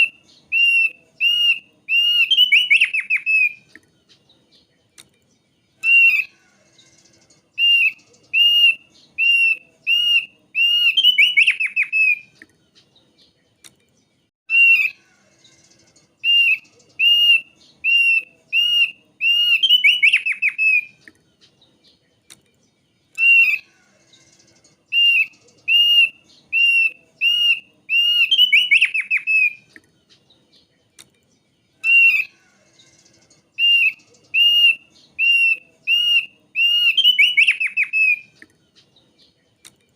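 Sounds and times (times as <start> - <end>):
bird singing whistled notes: 0.0 - 39.8.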